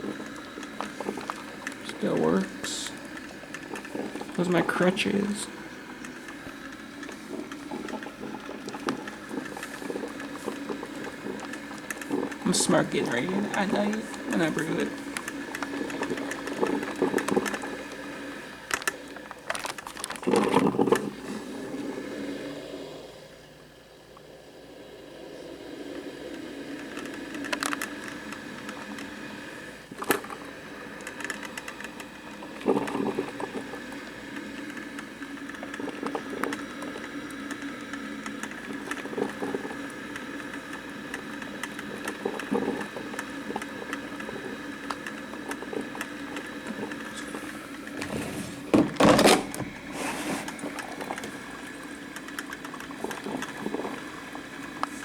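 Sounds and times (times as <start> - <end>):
clicks and pops: 0.0 - 4.7, 5.5 - 18.0
coffee maker hum and hiss: 0.0 - 55.0.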